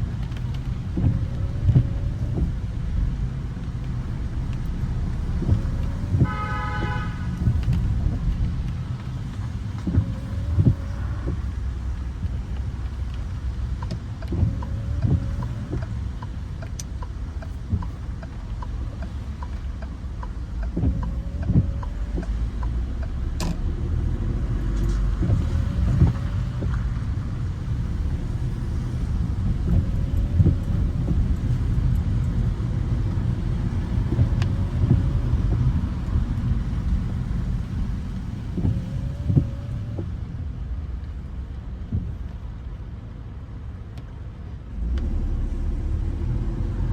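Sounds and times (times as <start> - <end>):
car road rumble: 0.0 - 46.9.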